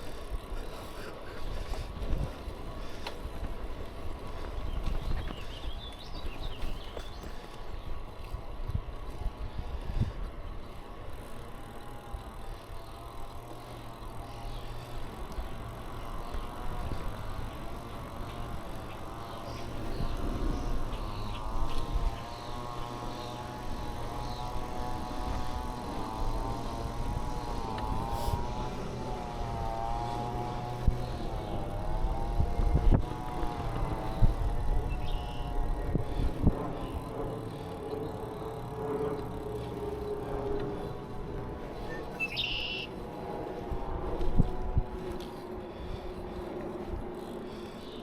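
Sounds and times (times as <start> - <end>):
wind rumble on microphone: 0.0 - 10.8, 14.0 - 47.8
wavering humming tone: 13.6 - 48.0.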